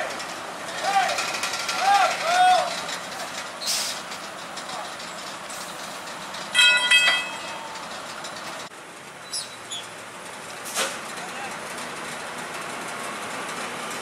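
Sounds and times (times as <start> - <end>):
horn tooting: 6.5 - 7.8.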